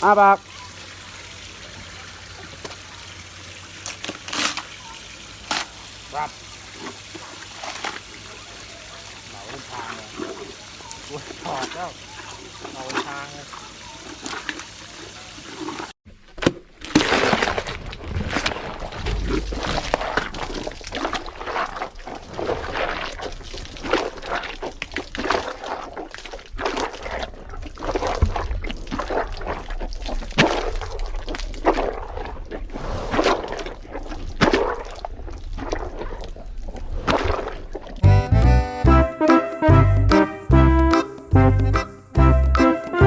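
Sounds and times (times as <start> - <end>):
hippo crunching watermelon: 3.8 - 4.8.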